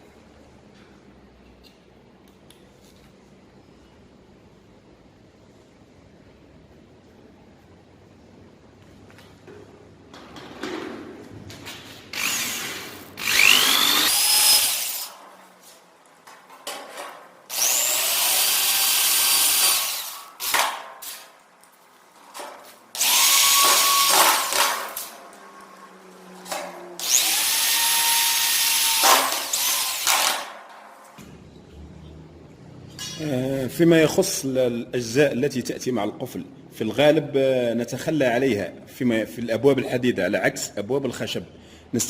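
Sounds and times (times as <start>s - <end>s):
power tool motor whine: 12.2s - 15.1s, 17.5s - 20.2s, 23.0s - 25.1s, 27.0s - 30.4s.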